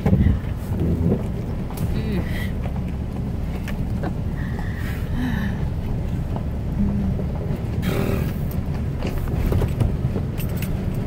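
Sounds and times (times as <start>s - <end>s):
truck clattering and rattling: 0.0s - 11.0s
truck engine and road rumble: 0.0s - 11.0s.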